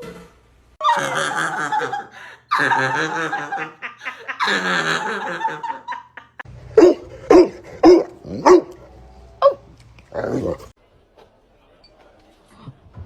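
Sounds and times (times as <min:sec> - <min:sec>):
dog barking: 0:06.8 - 0:10.6.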